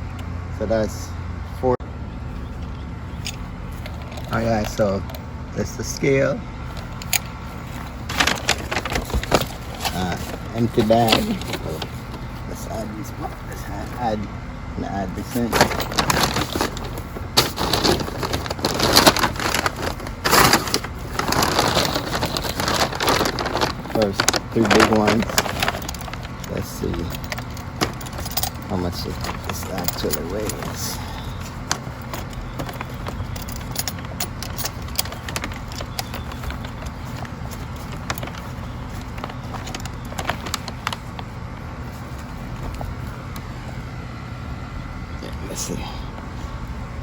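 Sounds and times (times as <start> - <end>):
low outdoor rumble: 0.0 - 47.0
clicks and knocks of handling: 6.7 - 12.3, 15.4 - 41.3
bag rustling and crinkling: 6.7 - 14.0, 15.2 - 43.6.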